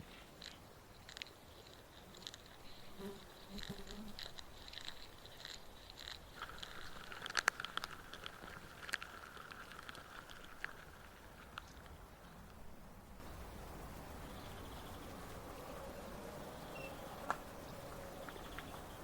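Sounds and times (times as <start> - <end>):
small clicks and crunches: 0.4 - 12.6
faint steady buzz: 11.0 - 19.0.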